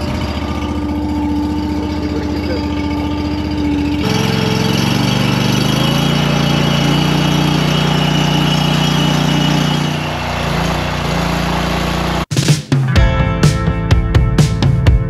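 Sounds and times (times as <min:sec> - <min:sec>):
guitar-driven music: 0:00.0 - 0:06.0, 0:12.3 - 0:15.0
log splitter engine running: 0:00.0 - 0:12.3.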